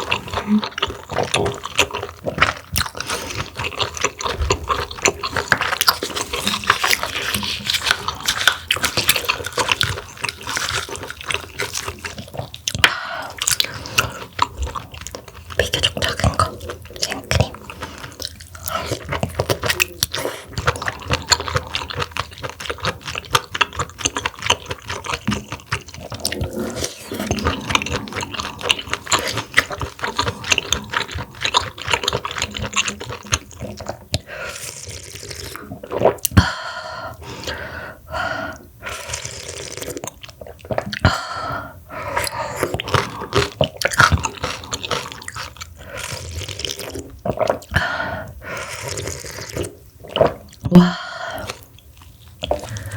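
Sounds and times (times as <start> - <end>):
wet chewing of mussels: 0.0 - 52.9.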